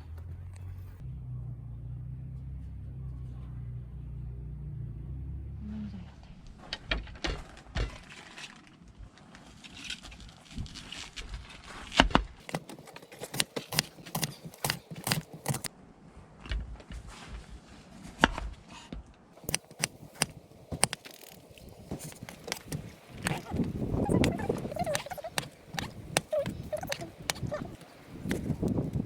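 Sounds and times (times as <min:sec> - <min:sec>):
low steady rumble: 0:00.0 - 0:06.6
utensils and packaging handled: 0:12.4 - 0:15.7.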